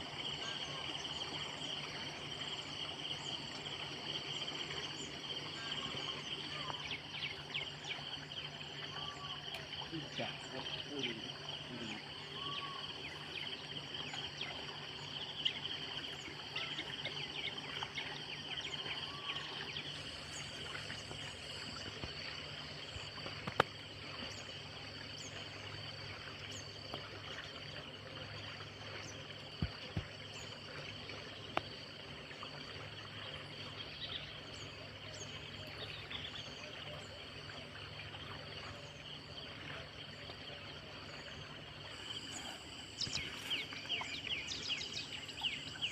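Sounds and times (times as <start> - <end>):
insects chirring: 0.0 - 45.9.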